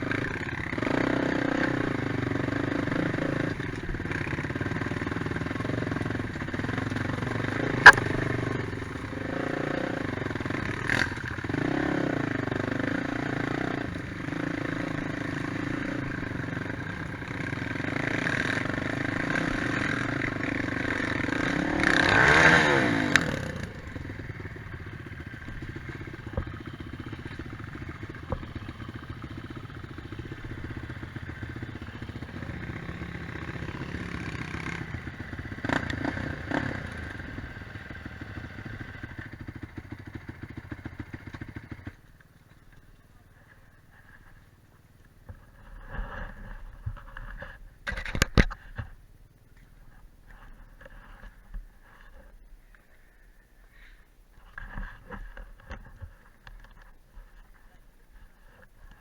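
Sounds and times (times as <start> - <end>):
quad bike engines revving: 0.0 - 44.5.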